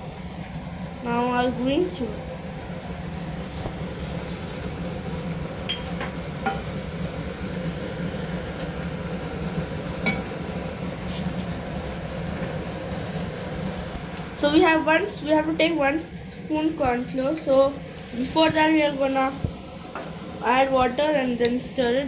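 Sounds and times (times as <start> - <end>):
garlic sizzling in oil: 0.2 - 14.4.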